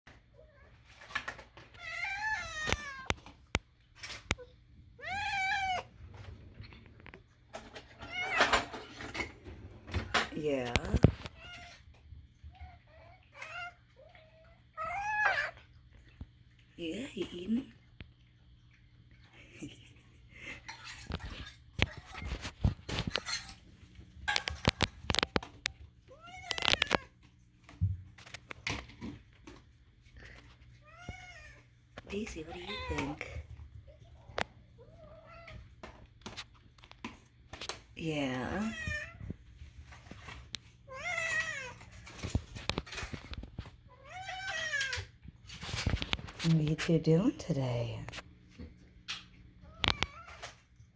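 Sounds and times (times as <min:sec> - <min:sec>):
cat meowing: 0:01.8 - 0:03.2, 0:05.0 - 0:05.9, 0:12.6 - 0:15.6.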